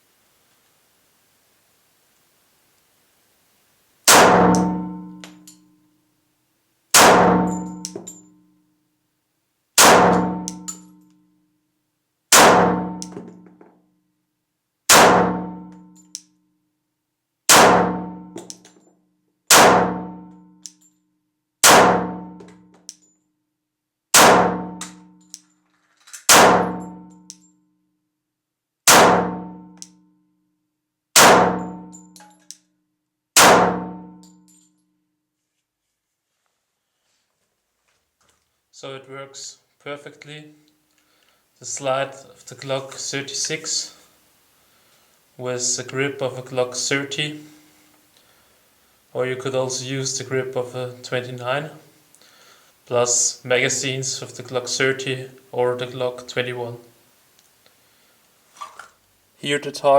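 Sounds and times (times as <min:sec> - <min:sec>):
pistol shots with ringing echo: 0:04.1 - 0:05.4, 0:07.0 - 0:08.1, 0:09.8 - 0:10.8, 0:12.3 - 0:13.1, 0:14.9 - 0:15.7, 0:17.5 - 0:18.3, 0:19.5 - 0:20.2, 0:21.6 - 0:22.4, 0:24.2 - 0:25.1, 0:26.3 - 0:27.0, 0:28.9 - 0:29.7, 0:31.2 - 0:32.0, 0:33.4 - 0:34.2.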